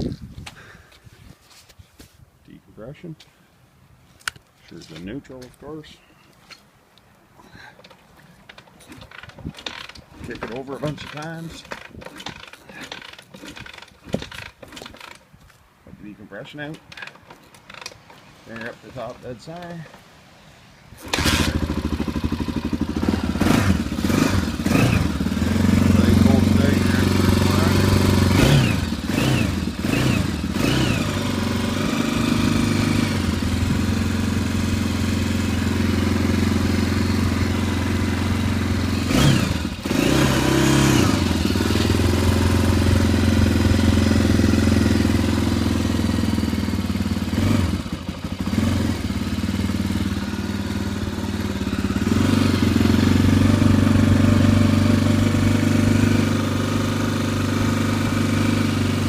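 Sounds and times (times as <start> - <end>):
dirt bike engine idling: 8.9 - 15.2, 21.0 - 59.0
engine throttle blips: 21.0 - 59.0.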